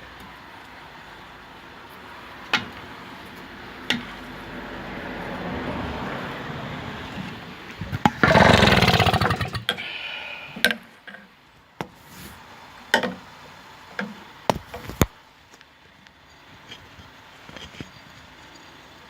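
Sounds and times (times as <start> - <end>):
outboard engine turning over: 7.8 - 9.8.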